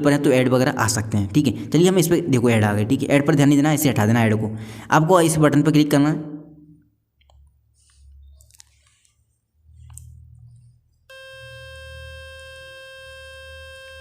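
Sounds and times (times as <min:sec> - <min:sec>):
phone speaker buzzing tone: 0:11.1 - 0:14.0.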